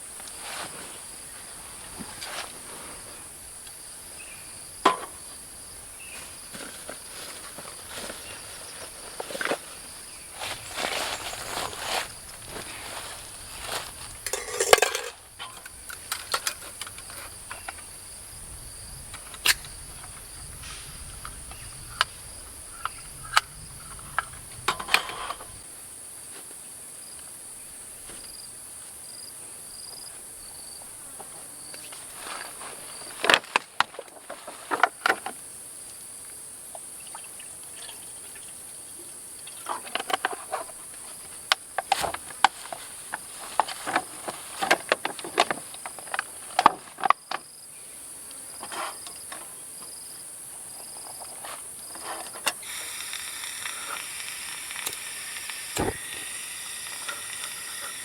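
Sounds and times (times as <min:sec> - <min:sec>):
insects chirping: 0:00.0 - 0:58.0
clicks and clattering knocks: 0:14.2 - 0:17.1.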